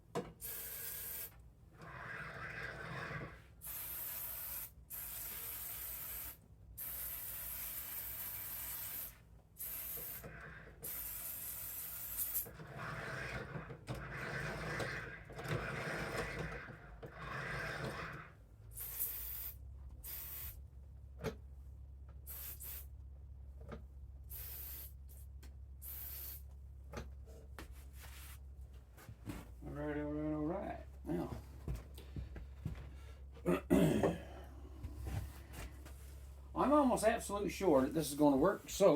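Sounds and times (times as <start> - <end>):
aerosol spray hissing bursts: 3.6 - 10.3, 10.9 - 12.4, 18.8 - 20.6, 22.3 - 22.9, 24.3 - 25.1, 25.8 - 26.5
rubbing and handling noise: 26.5 - 30.1, 34.7 - 38.9.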